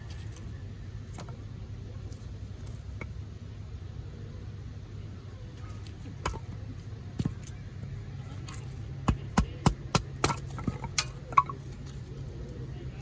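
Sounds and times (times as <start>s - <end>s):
firewood being chopped: 5.9s - 7.6s, 8.4s - 11.9s.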